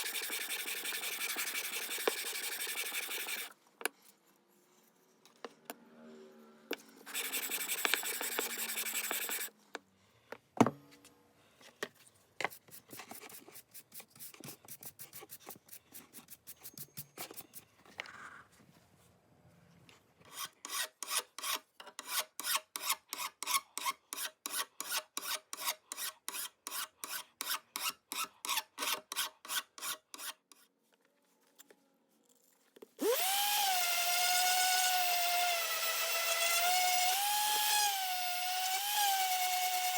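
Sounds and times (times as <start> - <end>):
plane sole scraping on abrasive paper: 0.0 - 3.5, 7.1 - 9.5
small motor whining: 7.1 - 9.5.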